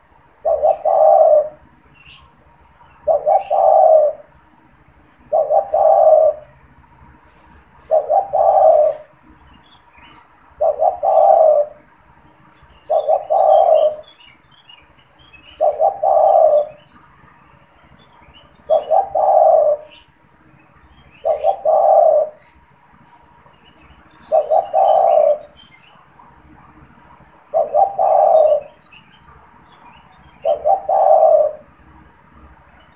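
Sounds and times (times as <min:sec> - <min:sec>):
dove cooing: 0:00.0 - 0:02.2, 0:03.0 - 0:04.4, 0:05.2 - 0:06.6, 0:07.3 - 0:09.2, 0:10.0 - 0:11.9, 0:12.5 - 0:14.3, 0:15.4 - 0:17.0, 0:18.6 - 0:20.1, 0:21.2 - 0:22.6, 0:24.2 - 0:26.8, 0:27.5 - 0:28.8, 0:30.4 - 0:31.7.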